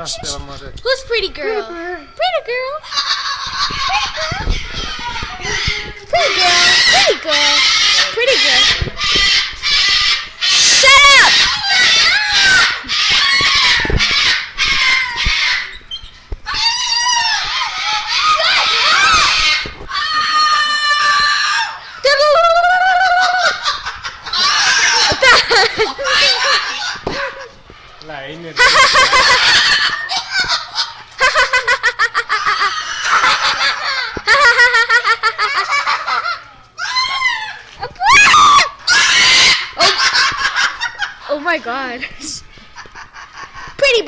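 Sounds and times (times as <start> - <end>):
parrot screeching: 2.8 - 27.2, 28.6 - 35.0, 35.8 - 40.3.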